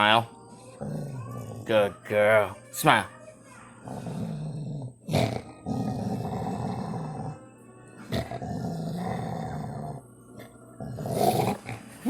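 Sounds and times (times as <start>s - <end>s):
dog growling low: 0.8s - 1.8s, 3.8s - 7.4s, 8.1s - 10.1s, 10.8s - 11.8s.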